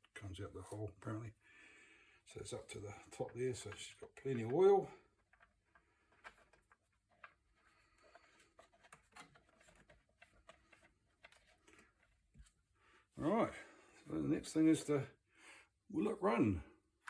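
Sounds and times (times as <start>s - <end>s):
light handling noises: 2.4s - 12.8s.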